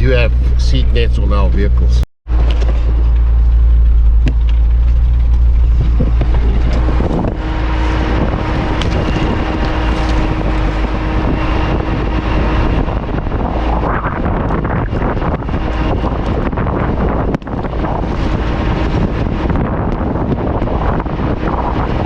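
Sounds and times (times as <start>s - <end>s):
vehicle engine and road rumble: 0.0s - 22.0s
vehicle pushing through long grass: 0.0s - 22.0s.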